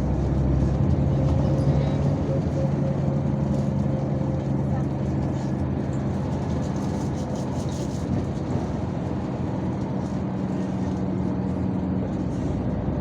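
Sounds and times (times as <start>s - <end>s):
bus engine hum: 0.0s - 13.0s
road noise: 0.0s - 13.0s.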